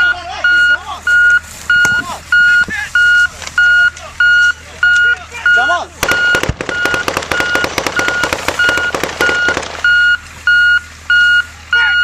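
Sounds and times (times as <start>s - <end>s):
truck reversing alarm beeping: 0.0s - 12.0s
rapid automatic gunfire: 6.0s - 10.0s.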